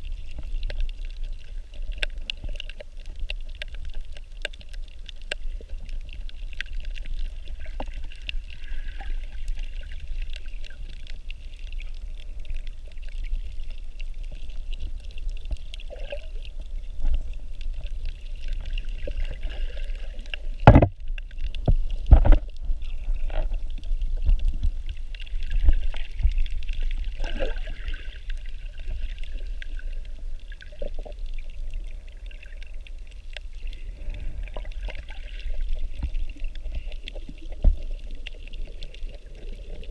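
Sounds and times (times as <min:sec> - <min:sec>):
water sloshing and gurgling: 0:00.0 - 0:39.9
thumps or splashes: 0:20.6 - 0:21.0, 0:21.7 - 0:22.5.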